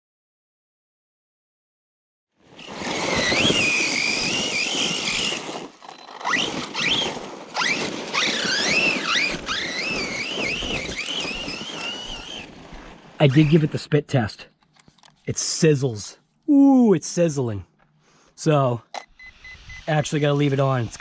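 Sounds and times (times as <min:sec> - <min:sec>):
electric motor whining: 0:02.6 - 0:12.6.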